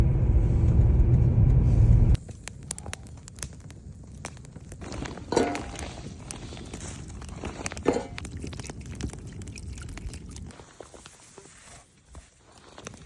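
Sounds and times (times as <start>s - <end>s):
loud low rumble: 0.0s - 2.2s
campfire crackling: 1.8s - 13.0s.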